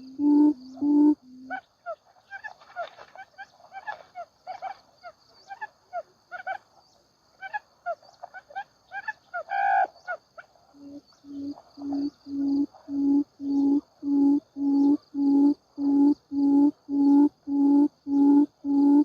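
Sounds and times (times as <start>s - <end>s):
high insect drone: 0.0s - 1.6s, 10.1s - 19.0s
quail chirping: 10.8s - 19.0s.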